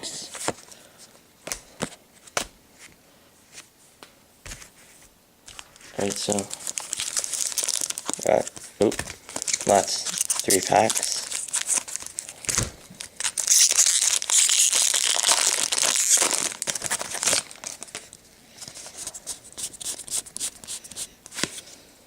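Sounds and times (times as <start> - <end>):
plastic wrapper tearing and crinkling: 5.5 - 18.2.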